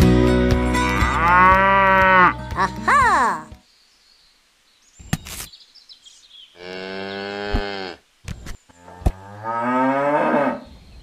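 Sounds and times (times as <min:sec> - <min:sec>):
cow mooing: 0:00.8 - 0:02.4.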